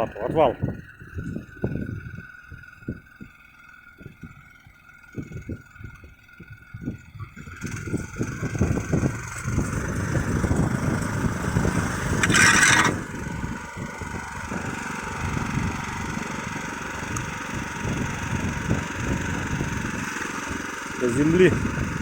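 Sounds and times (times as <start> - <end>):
walk-behind tractor engine running: 0.0 - 22.0
blade pushing snow: 7.7 - 13.8.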